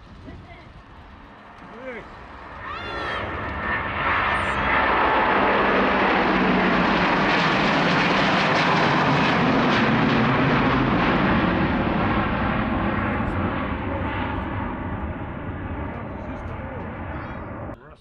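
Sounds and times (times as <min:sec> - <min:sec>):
jet engines at takeoff: 0:00.0 - 0:17.8.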